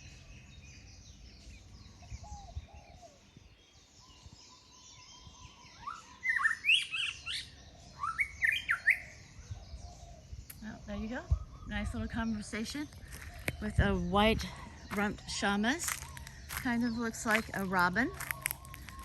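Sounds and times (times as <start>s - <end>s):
faint bird chirps: 0.0s - 19.0s
bird whistled song: 3.8s - 19.0s.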